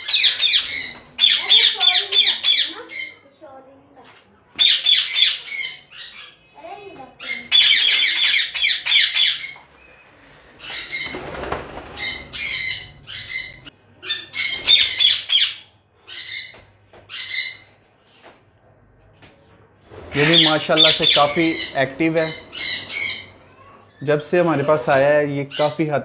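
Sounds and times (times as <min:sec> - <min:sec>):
parakeets squawking: 0:00.0 - 0:03.4, 0:04.6 - 0:17.8, 0:20.0 - 0:26.0.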